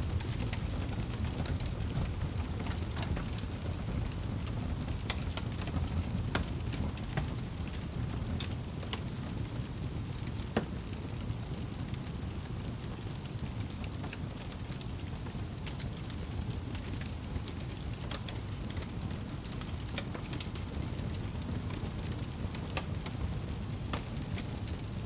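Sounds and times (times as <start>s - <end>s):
wood fire crackling and popping: 0.0s - 25.0s.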